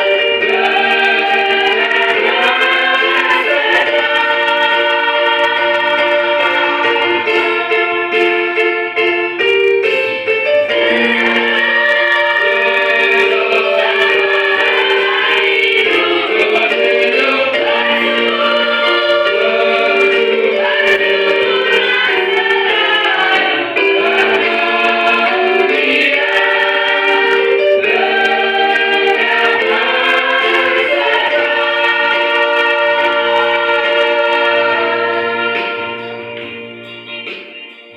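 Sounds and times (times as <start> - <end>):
choir singing a hymn: 0.0 - 36.7.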